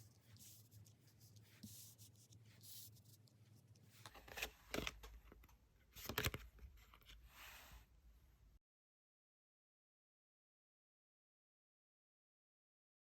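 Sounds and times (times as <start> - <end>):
cards sliding and brushing: 6.0 - 7.9.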